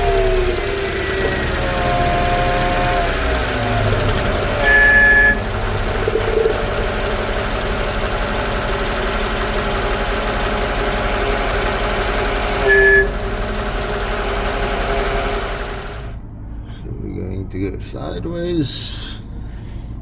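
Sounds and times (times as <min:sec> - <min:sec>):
car engine idling: 0:00.0 - 0:20.0
short high-pitched tone: 0:12.6 - 0:13.2.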